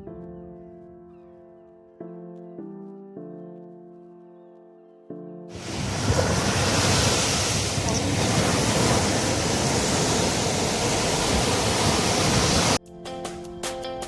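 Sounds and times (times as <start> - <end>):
ocean waves breaking: 5.5 - 12.8
wind buffeting microphone: 5.6 - 12.8.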